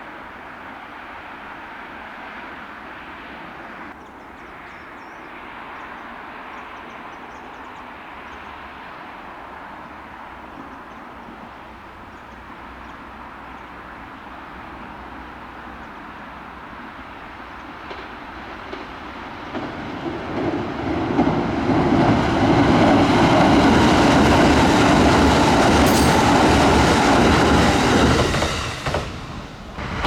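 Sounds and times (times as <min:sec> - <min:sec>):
electric train rushing and rumbling: 0:12.7 - 0:30.0.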